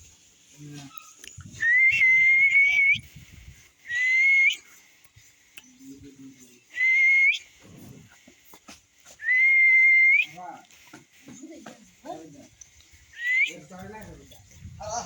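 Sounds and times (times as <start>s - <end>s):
whistled notes: 1.5s - 3.1s, 3.8s - 4.7s, 6.7s - 7.5s, 9.2s - 10.4s, 13.1s - 13.7s.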